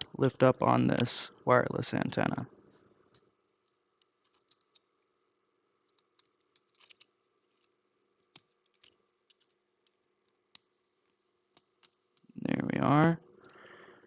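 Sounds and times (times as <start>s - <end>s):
small clicks and taps: 3.0s - 5.1s, 5.8s - 12.3s.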